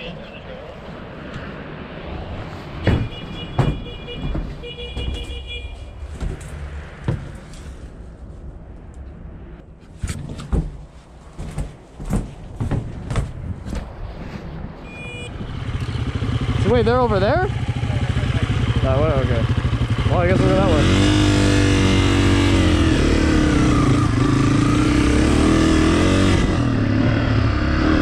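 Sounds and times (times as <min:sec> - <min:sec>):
sharp clunks and knocks: 0:02.8 - 0:05.4, 0:06.2 - 0:07.6, 0:09.9 - 0:14.0.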